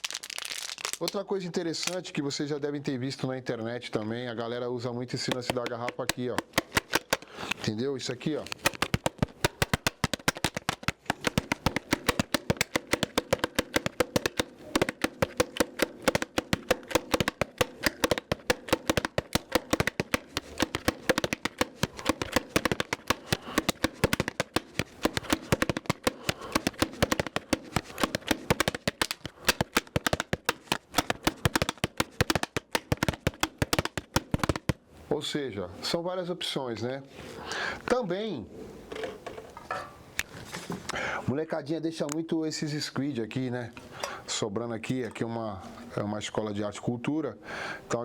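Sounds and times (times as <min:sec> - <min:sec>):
plastic bottle clicks and crackles: 0:00.0 - 0:02.2, 0:05.2 - 0:34.8.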